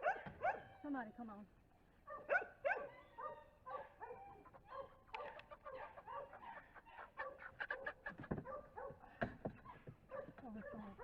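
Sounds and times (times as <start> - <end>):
chickens clucking: 4.3 - 10.9.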